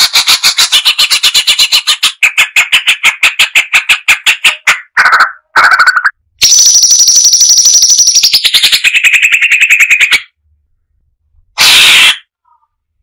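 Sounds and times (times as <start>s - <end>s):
bird singing rapid trill: 5.8s - 10.4s
harsh bird call: 11.6s - 12.7s.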